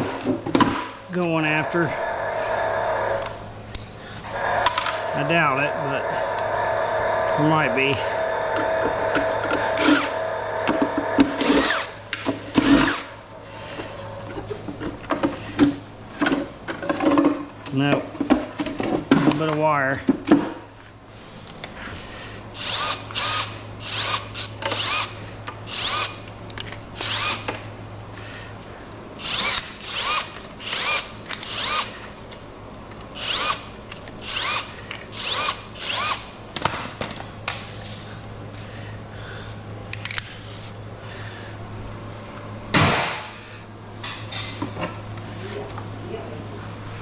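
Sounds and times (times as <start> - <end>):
steady low hum: 0.0 - 47.0
power drill whirring: 1.5 - 3.5, 4.2 - 13.8, 22.5 - 26.3, 26.9 - 27.6, 29.2 - 32.2, 33.1 - 36.4
loud clunk: 42.7 - 43.4.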